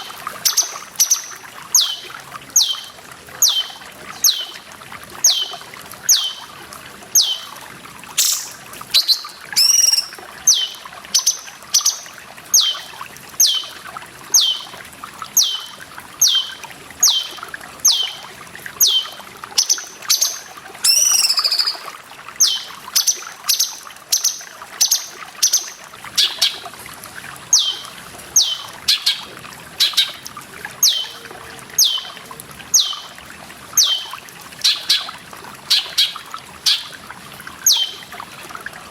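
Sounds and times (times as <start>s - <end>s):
trickling water: 0.0s - 38.9s
bird calling with downward notes: 0.4s - 4.6s, 5.2s - 6.5s, 7.2s - 7.5s, 8.2s - 13.8s, 14.4s - 14.8s, 15.4s - 18.2s, 18.8s - 26.6s, 27.5s - 30.2s, 30.8s - 32.2s, 32.8s - 33.1s, 33.8s - 35.1s, 35.7s - 36.9s, 37.6s - 38.1s
warbled bird notes: 0.4s - 4.6s, 5.2s - 6.5s, 7.2s - 7.6s, 8.2s - 13.7s, 15.4s - 26.6s, 27.5s - 30.2s, 30.8s - 31.2s, 31.8s - 32.2s, 33.8s - 35.1s, 37.7s - 38.1s.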